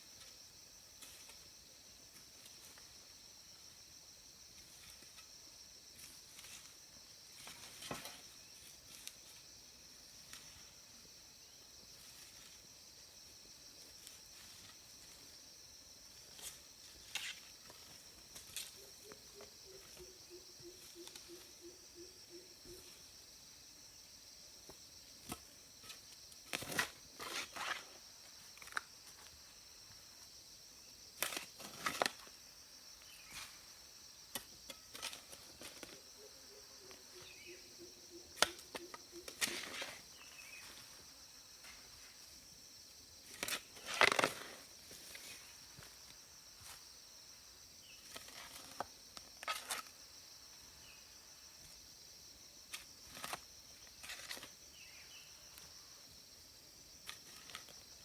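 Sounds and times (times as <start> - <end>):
scraping and crunching noises: 24.6 - 29.4, 31.2 - 32.4, 34.3 - 36.1, 38.3 - 42.3, 43.2 - 46.9, 47.9 - 50.0, 52.6 - 54.9, 57.0 - 58.0.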